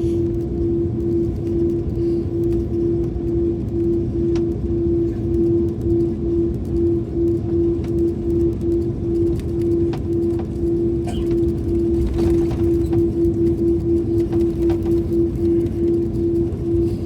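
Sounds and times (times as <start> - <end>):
vehicle engine rumbling: 8.2 - 17.0.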